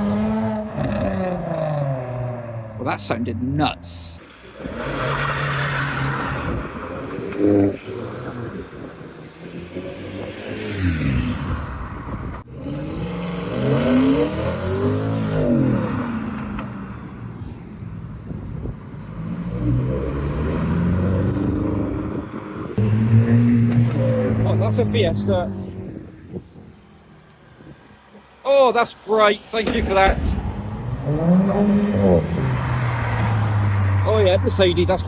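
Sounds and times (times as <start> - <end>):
cars accelerating: 0.0 - 3.1, 3.9 - 35.0
loud engine close by: 19.1 - 26.7.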